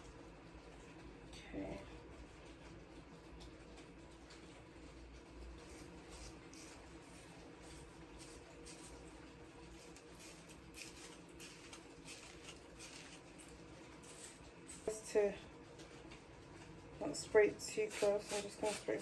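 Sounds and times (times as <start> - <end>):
low steady hum: 0.0 - 19.0
scratching and rustling of hair: 5.5 - 15.2, 17.6 - 19.0.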